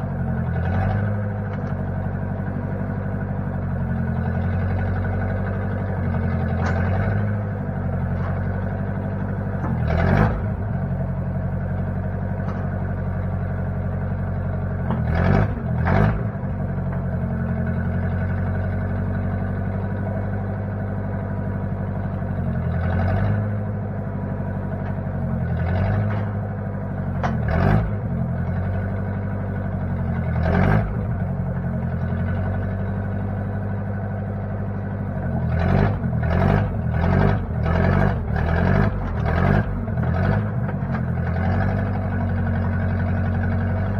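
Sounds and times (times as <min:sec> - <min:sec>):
backhoe engine running: 0:00.0 - 0:43.9
metal clanks and knocks: 0:06.4 - 0:07.4, 0:08.0 - 0:10.6, 0:12.3 - 0:12.9.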